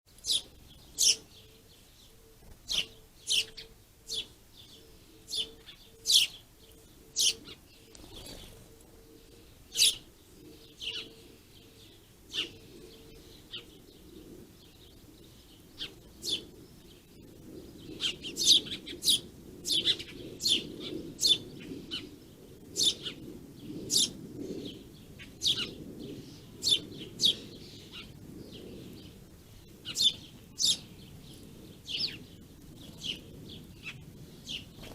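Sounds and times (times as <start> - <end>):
songbirds chirping: 0.1 - 34.9.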